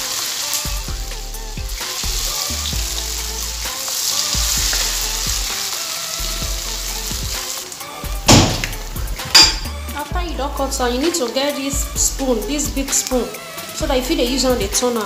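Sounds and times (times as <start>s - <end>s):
fritters deep-frying sizzle: 0.0s - 9.5s
loud knocks: 8.3s - 8.8s.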